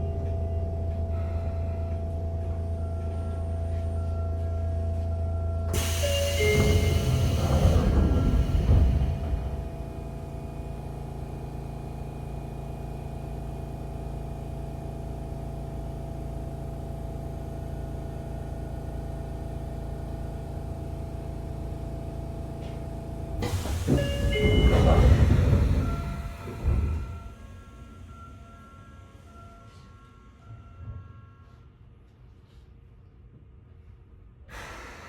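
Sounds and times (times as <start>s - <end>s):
train electrical equipment hum: 0.0s - 35.0s
train rushing noise with whining: 5.7s - 10.7s, 23.4s - 28.3s.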